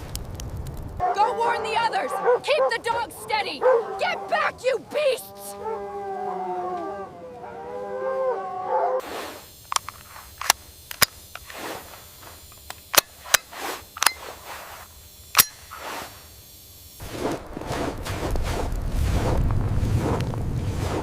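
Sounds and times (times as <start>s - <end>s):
wolves howling: 1.0s - 9.0s
rustling noise: 17.0s - 21.0s.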